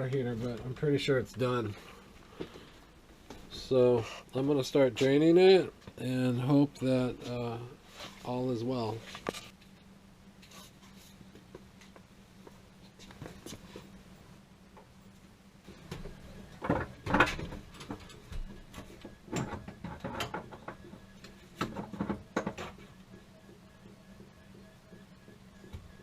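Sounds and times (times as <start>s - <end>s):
faint steady hum: 0.0s - 26.0s
knocks and clatter of parts: 15.7s - 23.0s.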